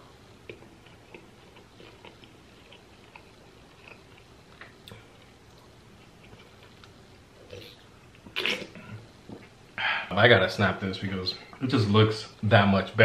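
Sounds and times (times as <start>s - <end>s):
chewing: 0.1s - 9.6s.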